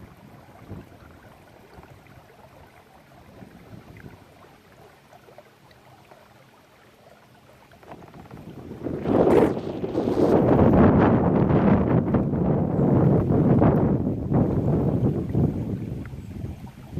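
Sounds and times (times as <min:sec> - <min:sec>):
small water splashes: 0:00.0 - 0:16.9
water lapping against kayak: 0:00.0 - 0:16.9.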